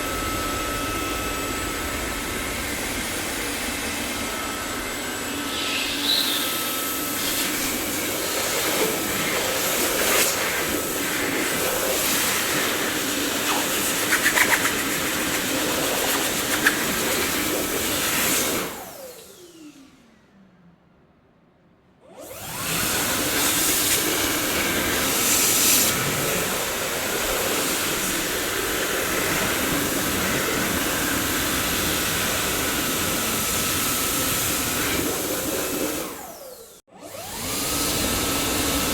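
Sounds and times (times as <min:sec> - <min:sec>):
motor winding down whine: 0:00.0 - 0:08.5, 0:12.0 - 0:20.4, 0:22.1 - 0:24.5
vacuum cleaner running: 0:00.0 - 0:20.3, 0:22.0 - 0:38.9.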